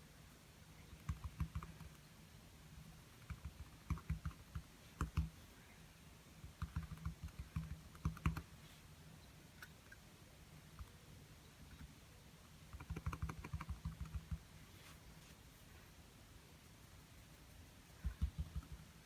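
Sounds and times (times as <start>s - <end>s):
brush tapping on canvas: 18.0s - 18.9s.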